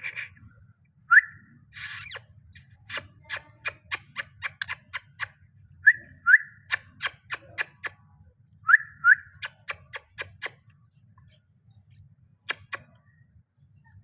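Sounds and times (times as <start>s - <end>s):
parrot sharp clicks: 3.3s - 5.3s, 9.4s - 10.6s, 12.5s - 13.0s.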